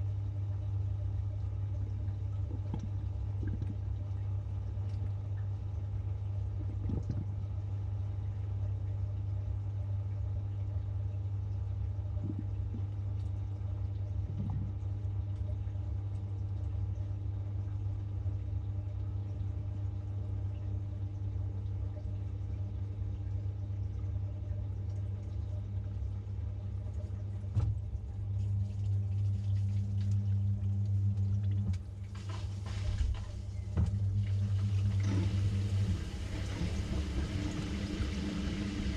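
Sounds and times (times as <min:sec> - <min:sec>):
washing machine humming: 0:00.0 - 0:38.9
water rushing in: 0:32.0 - 0:38.9.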